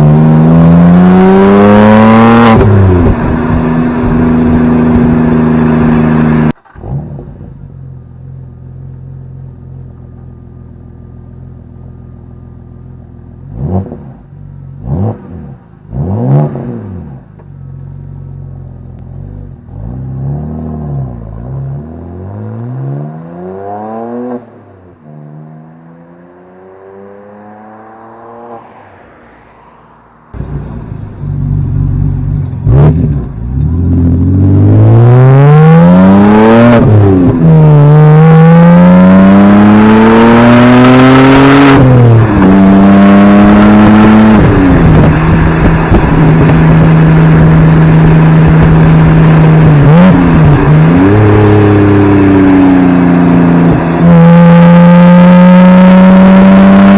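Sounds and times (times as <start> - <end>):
car engine revving through gears: 0.0 - 7.4, 30.4 - 56.9.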